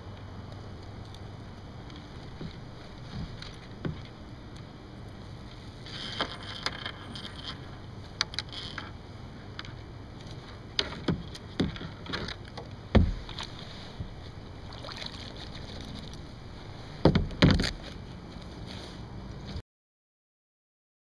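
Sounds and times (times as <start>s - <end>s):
knocks against kayak hull: 12.9s - 13.5s, 17.0s - 17.8s.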